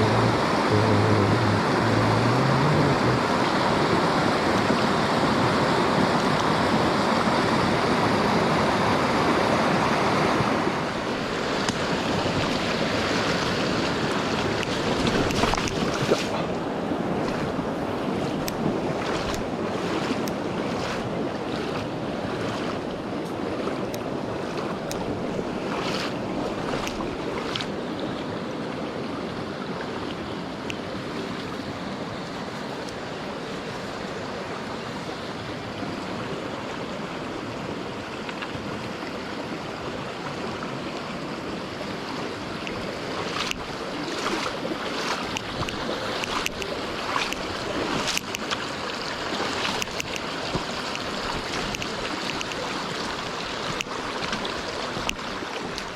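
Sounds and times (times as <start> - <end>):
stream water rushing: 0.0 - 55.9.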